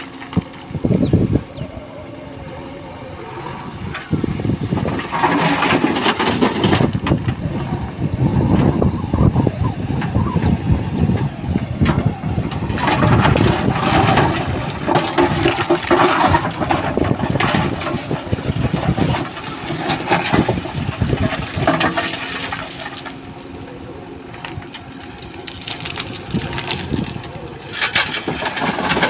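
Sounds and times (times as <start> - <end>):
diesel engine running: 0.0 - 29.0
stones pouring and clattering: 12.8 - 18.0, 25.0 - 29.0.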